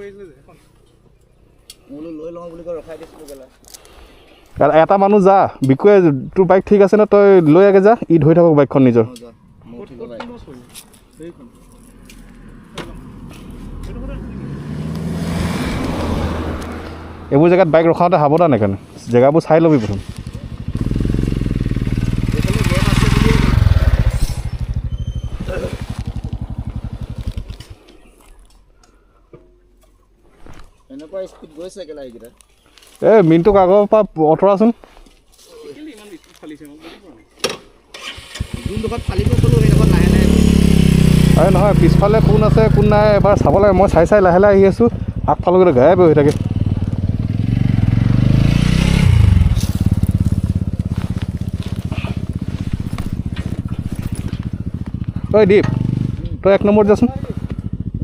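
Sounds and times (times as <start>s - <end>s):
motorcycle engine thudding: 20.1s - 28.0s, 42.2s - 56.4s.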